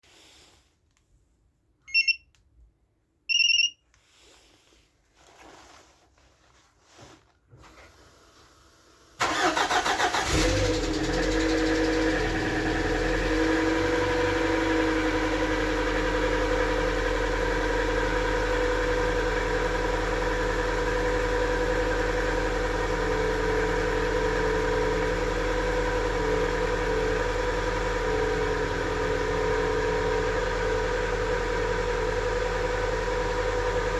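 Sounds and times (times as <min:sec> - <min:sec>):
short electronic beeps: 0:01.9 - 0:02.3, 0:03.3 - 0:03.8
car engine starting and idling: 0:08.0 - 0:33.9.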